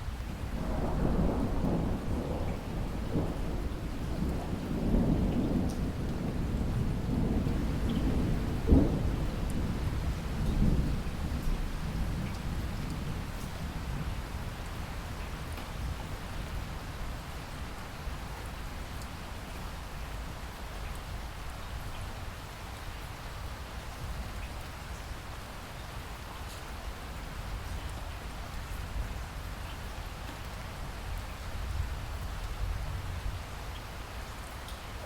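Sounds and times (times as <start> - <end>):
rain hiss: 0.0 - 35.0
rain drop ticks: 4.0 - 6.7, 7.8 - 9.7, 11.4 - 13.6, 14.6 - 16.3, 17.7 - 19.7, 26.4 - 28.8, 29.4 - 31.4, 32.1 - 32.7, 33.7 - 35.0.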